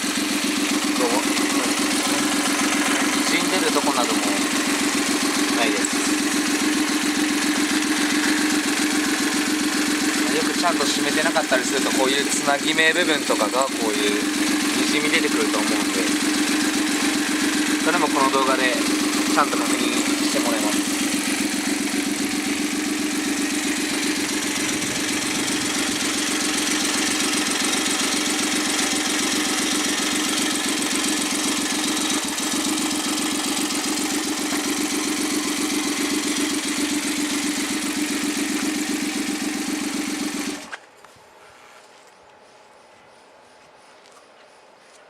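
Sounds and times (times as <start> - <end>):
three-cylinder engine running: 0.0 - 40.9.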